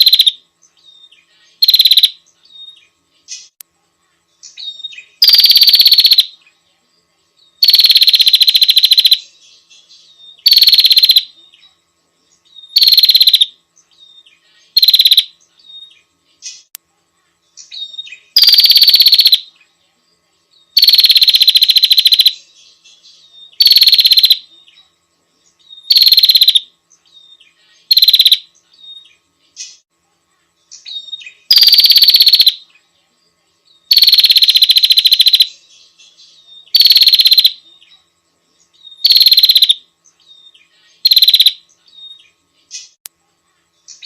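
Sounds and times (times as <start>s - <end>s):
bird buzzy trills: 0.0s - 44.0s.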